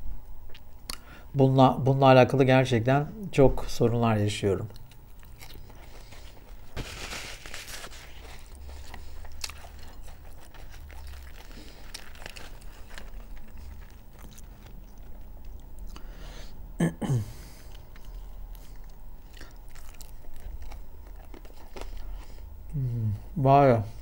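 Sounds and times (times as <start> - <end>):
chewing and crunching food: 4.4 - 16.6, 17.2 - 22.8
bread crust crackling as torn: 4.6 - 16.0.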